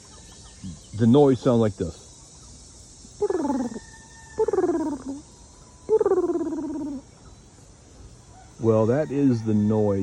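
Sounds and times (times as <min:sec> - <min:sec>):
turkey hen purring call: 0:03.2 - 0:07.1.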